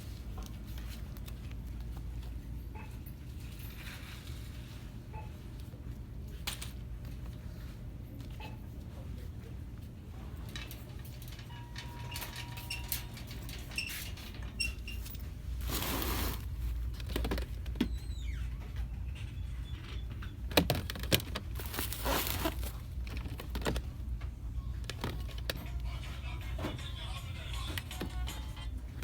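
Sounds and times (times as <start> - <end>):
rustling of goods: 0.0 - 29.0.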